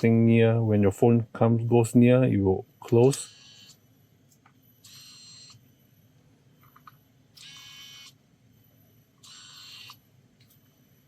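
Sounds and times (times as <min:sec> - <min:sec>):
small electric motor whirring: 0:09.2 - 0:10.0.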